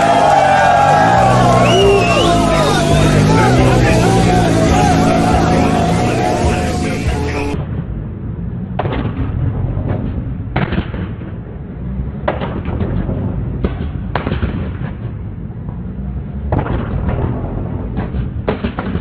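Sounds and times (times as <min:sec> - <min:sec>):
car engine rumbling: 0:00.0 - 0:07.6
exhaust pops and bangs: 0:16.5 - 0:19.0.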